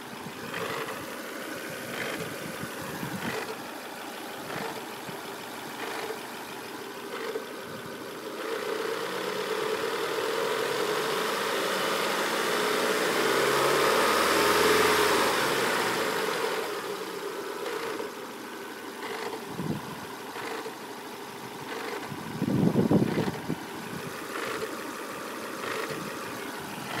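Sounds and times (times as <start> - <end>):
car engine idling: 0.0 - 27.0
engine rattling knocks: 0.3 - 1.1, 1.8 - 3.7, 4.4 - 6.4, 19.0 - 27.0.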